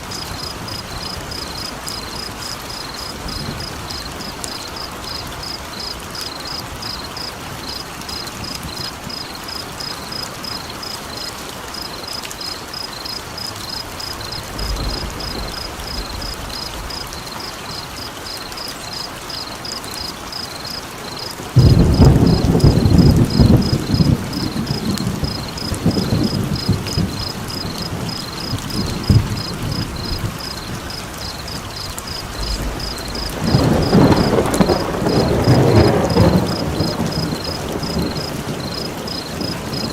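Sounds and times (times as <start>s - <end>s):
steady rain: 0.0s - 39.9s
thunder rumbling: 13.9s - 17.9s, 21.4s - 39.9s.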